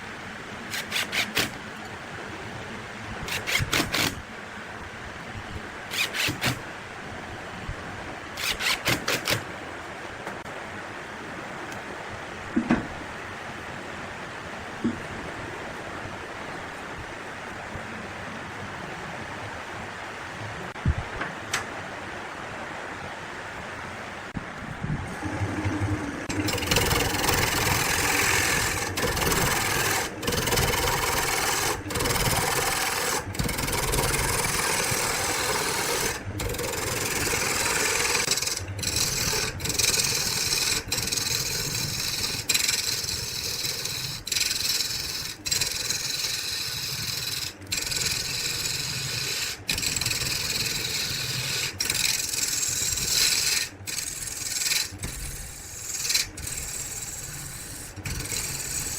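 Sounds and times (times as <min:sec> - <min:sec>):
tool rasping on spinning wood: 0:00.7 - 0:01.8, 0:03.2 - 0:04.2, 0:05.9 - 0:06.6, 0:08.4 - 0:09.4, 0:25.3 - 0:58.9.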